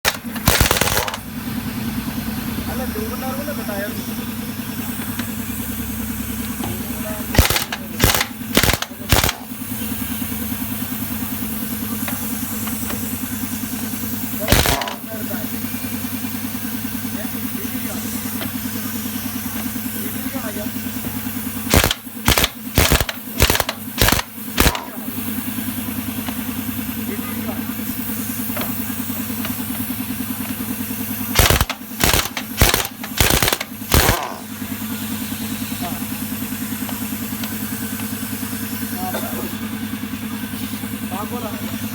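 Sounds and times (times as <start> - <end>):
impact wrench bursts: 0.0 - 1.4, 6.5 - 10.9, 13.8 - 15.6, 20.4 - 26.4, 30.5 - 35.4
rhythmic machine throb: 0.0 - 1.4, 5.6 - 9.6, 14.4 - 15.4, 21.6 - 25.0, 31.3 - 34.6
rhythmic engine hum: 0.0 - 41.9.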